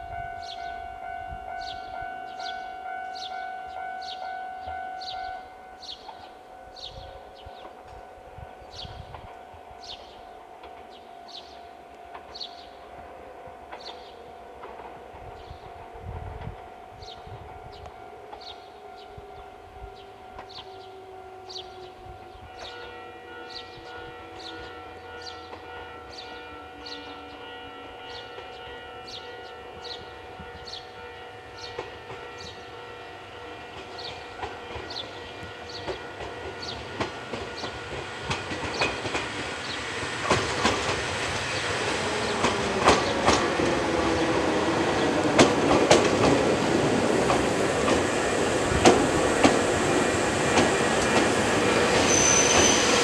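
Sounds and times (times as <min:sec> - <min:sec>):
electric train running: 0:31.7 - 0:53.0
wheels clicking over rail joints: 0:33.7 - 0:52.7.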